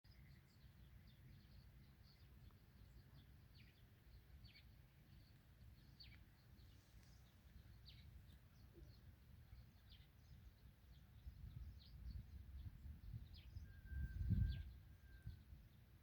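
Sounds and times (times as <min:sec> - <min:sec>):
faint bird chirps: 0:00.1 - 0:16.0.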